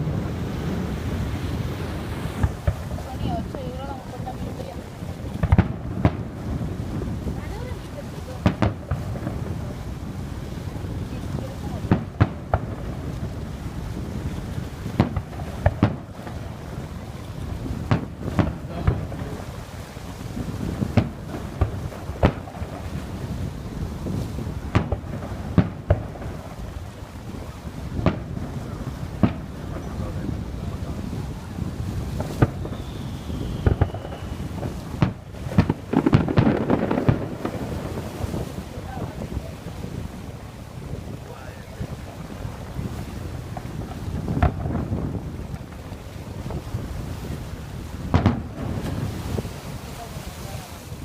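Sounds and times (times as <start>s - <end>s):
fireworks bursting: 0.0s - 51.0s
wind noise on microphone: 0.0s - 51.0s
fireworks shells bursting: 32.1s - 37.9s
faint falling whistle: 32.6s - 34.5s.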